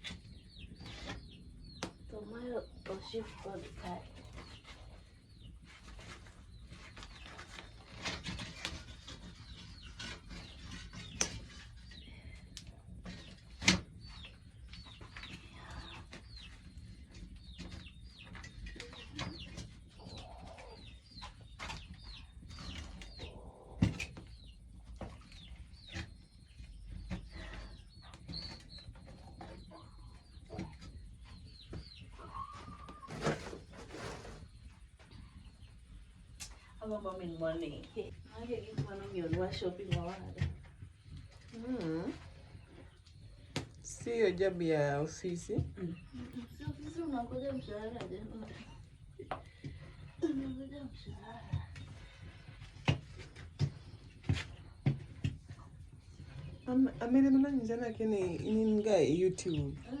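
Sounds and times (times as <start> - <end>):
birds chirping: 0.0 - 60.0.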